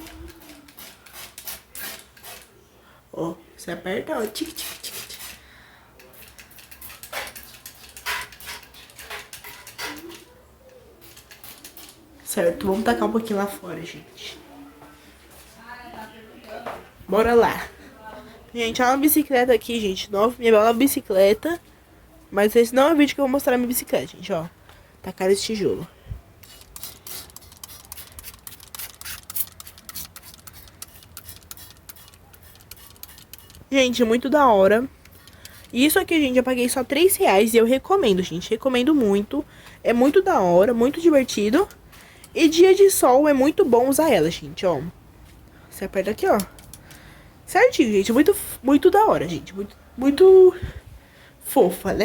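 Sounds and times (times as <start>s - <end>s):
water gun spurts: 26.4s - 33.7s.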